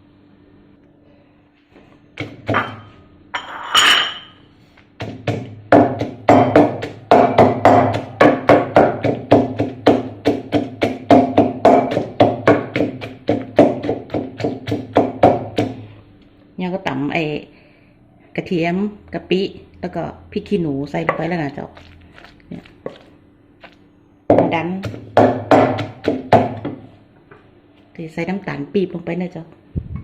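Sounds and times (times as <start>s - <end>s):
pestle pounding in a mortar: 2.2s - 2.9s, 5.0s - 15.9s, 21.0s - 26.9s.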